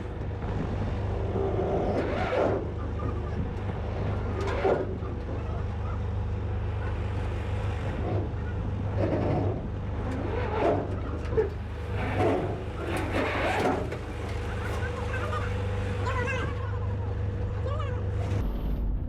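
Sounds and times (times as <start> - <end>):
distant voices: 0.0 - 18.7
clatter: 0.0 - 19.0
motor humming: 0.0 - 19.0.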